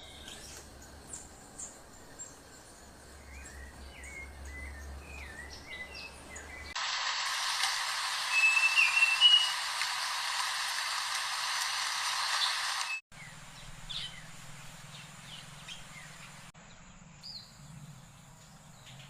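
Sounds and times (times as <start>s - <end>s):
bird chirping: 0.0s - 6.8s, 8.3s - 9.6s, 12.4s - 19.0s
loud steady hiss: 6.8s - 13.0s
whistled bird notes: 8.3s - 9.6s.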